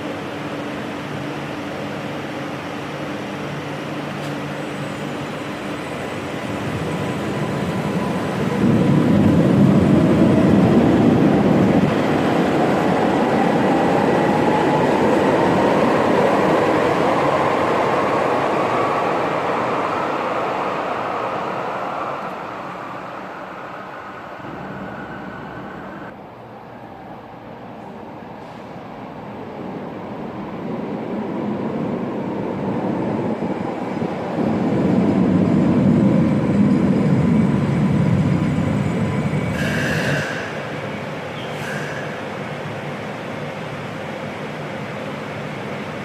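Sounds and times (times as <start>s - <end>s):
light-rail train pulling away: 0.0s - 46.0s
traction motor whine rising: 23.9s - 26.1s.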